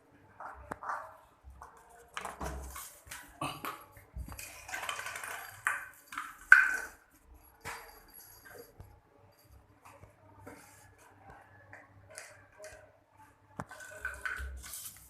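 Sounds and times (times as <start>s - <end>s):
dog playing with plastic bottle: 4.3s - 6.9s.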